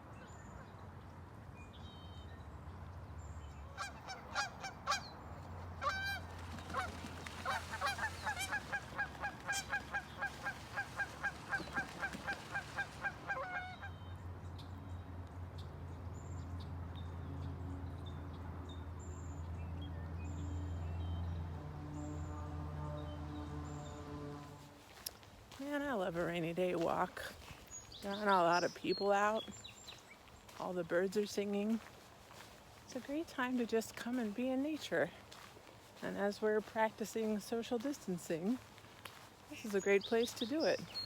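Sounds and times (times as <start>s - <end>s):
waterfowl honking: 3.7s - 5.2s, 5.8s - 14.1s.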